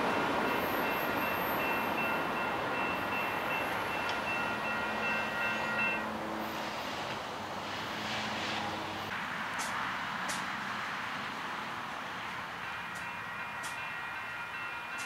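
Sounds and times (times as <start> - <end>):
distant train rumbling: 0.0 - 15.0.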